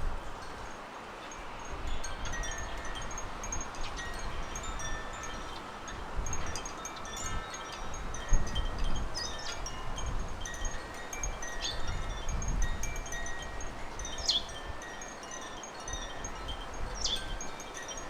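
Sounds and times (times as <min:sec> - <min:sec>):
wind rumbling on microphone: 0:00.0 - 0:18.0
small birds chirping: 0:14.0 - 0:14.7, 0:16.9 - 0:18.0.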